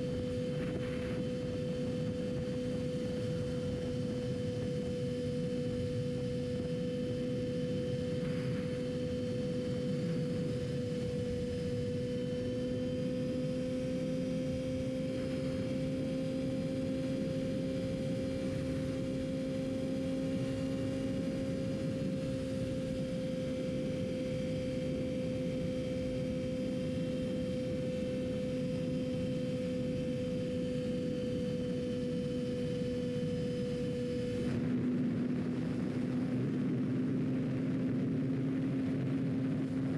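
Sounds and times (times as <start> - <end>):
steady rushing noise: 0.0 - 23.0.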